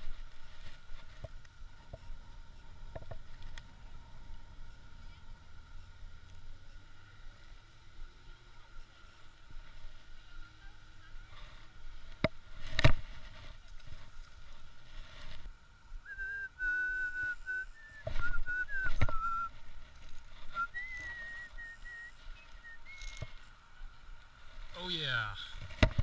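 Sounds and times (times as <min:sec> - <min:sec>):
person whistling a tune: 0:16.0 - 0:19.5, 0:20.5 - 0:23.2.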